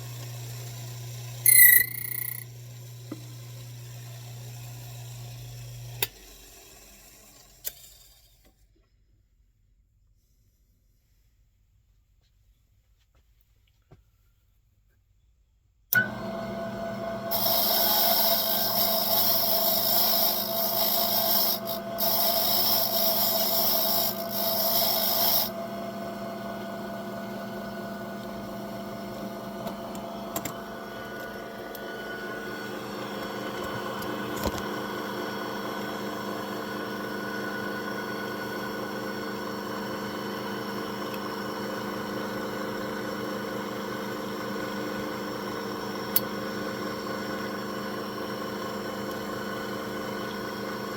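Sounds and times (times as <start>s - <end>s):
key cutter grinding key blank: 1.5s - 2.4s.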